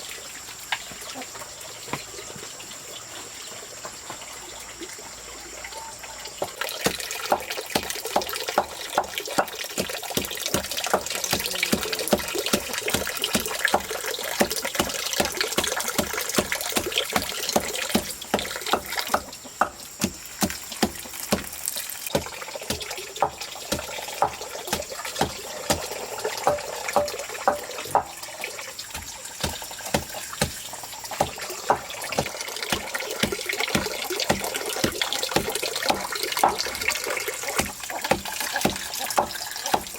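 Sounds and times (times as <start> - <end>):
running water: 0.0 - 39.9
short splashes or knocks: 28.9 - 39.9.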